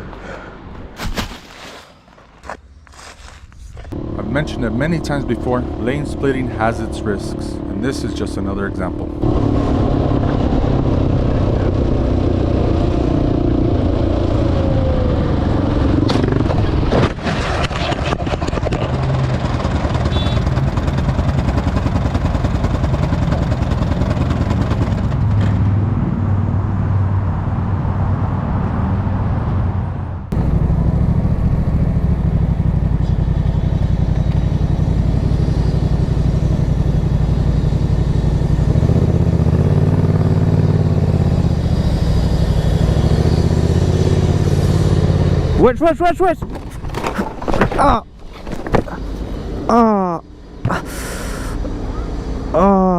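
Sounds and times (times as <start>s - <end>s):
road noise: 0.0s - 52.9s
motorcycle engine running: 3.9s - 16.9s, 18.2s - 25.6s, 30.3s - 45.7s.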